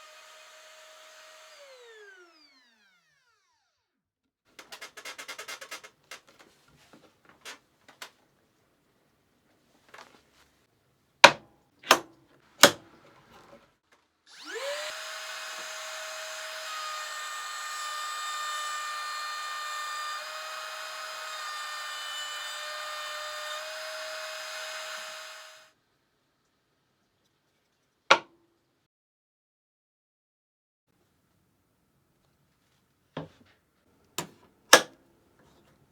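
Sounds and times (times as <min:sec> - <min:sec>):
router motor whining: 0:00.0 - 0:03.9, 0:14.3 - 0:25.7
sharp clicks: 0:04.6 - 0:06.5.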